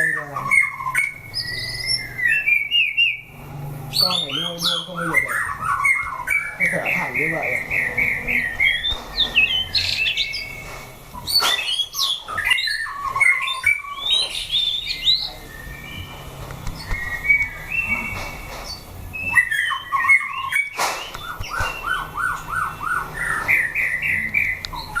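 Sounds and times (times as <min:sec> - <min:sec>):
birds singing whistled phrases: 0:00.0 - 0:25.0.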